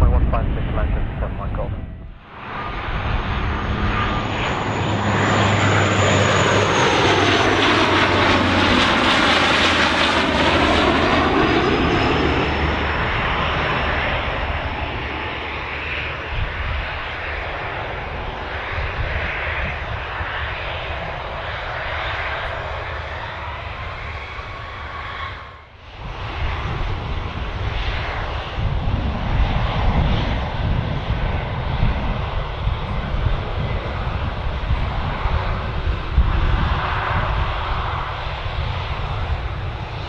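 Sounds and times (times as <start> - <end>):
high jet whine falling in pitch: 0.0 - 15.2
airliner passing: 0.0 - 40.0.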